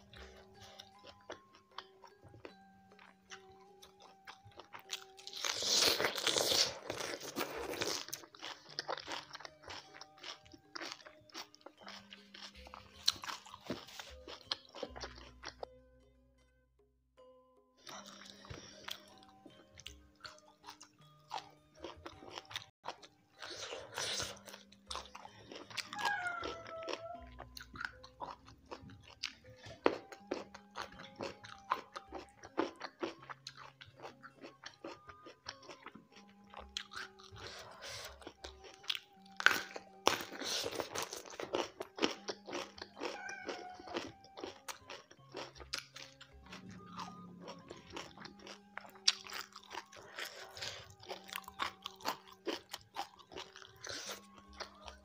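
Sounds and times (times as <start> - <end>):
crisp crunchy chewing: 0.0 - 15.7, 17.9 - 55.0
soft background music: 0.0 - 55.0.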